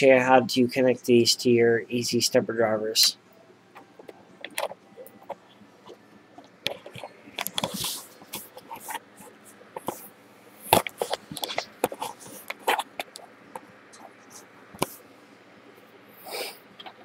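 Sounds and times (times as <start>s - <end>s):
clicks and knocks handling parts: 3.8s - 9.0s, 10.7s - 13.2s.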